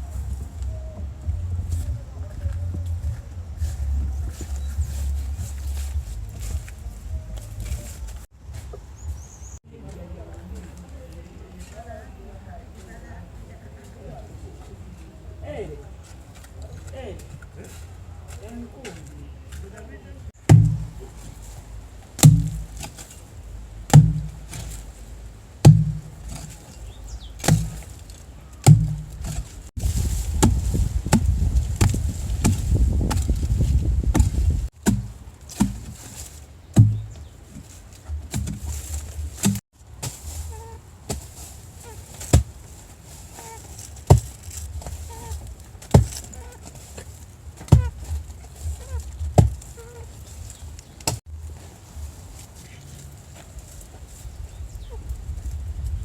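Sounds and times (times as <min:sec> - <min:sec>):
scraping or rustling: 0:01.5 - 0:08.3, 0:20.4 - 0:56.0
chopping blows: 0:20.4 - 0:21.4, 0:22.2 - 0:23.1, 0:23.9 - 0:24.8, 0:25.6 - 0:26.6, 0:27.4 - 0:28.0, 0:28.6 - 0:36.1.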